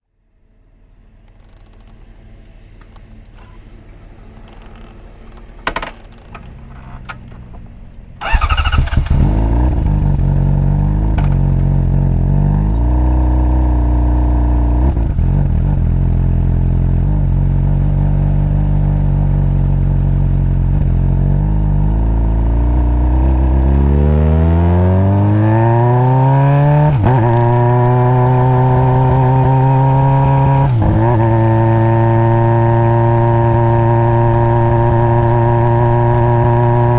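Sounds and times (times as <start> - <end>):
motorcycle engine idling and revving: 0.4 - 36.9
starter clicks: 4.3 - 9.6.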